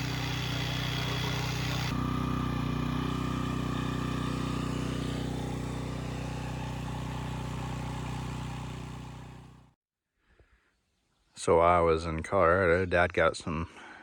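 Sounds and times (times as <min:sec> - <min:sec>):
diesel tractor engine running: 0:00.0 - 0:09.8.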